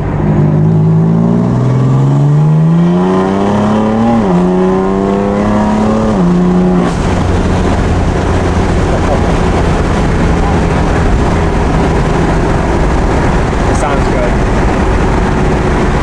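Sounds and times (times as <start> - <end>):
car engine accelerating hard: 0.0 - 16.0
steady rush of noise: 0.0 - 16.0.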